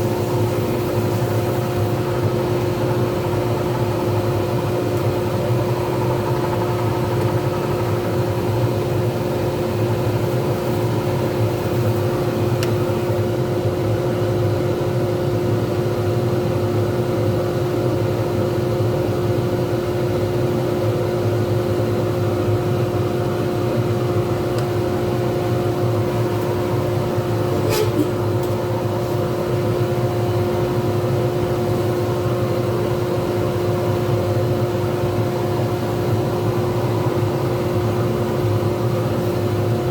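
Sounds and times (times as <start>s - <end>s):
lathe motor humming: 0.0s - 13.3s, 24.0s - 39.9s.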